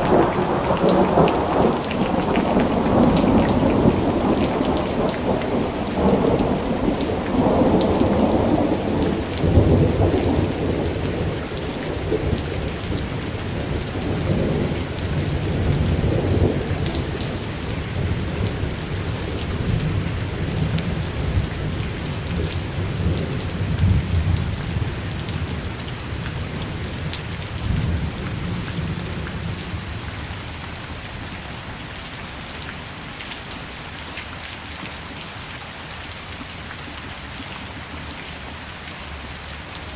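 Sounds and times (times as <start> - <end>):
thunder rolling: 0.0 - 30.2
steady rain: 0.0 - 39.9.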